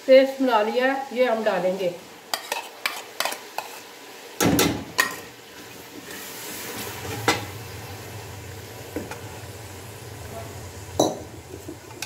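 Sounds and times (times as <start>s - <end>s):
paste sizzling in hot oil: 1.0s - 12.0s
spoon scraping a plate: 2.3s - 3.8s
knock against pot: 11.0s - 11.3s.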